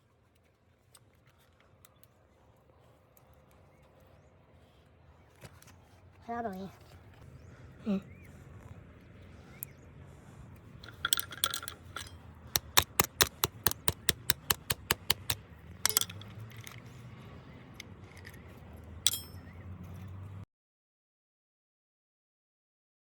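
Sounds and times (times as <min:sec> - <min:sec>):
sharp metallic taps: 0:10.8 - 0:16.4, 0:19.1 - 0:19.4
metal clinks: 0:10.8 - 0:16.9, 0:19.0 - 0:19.6.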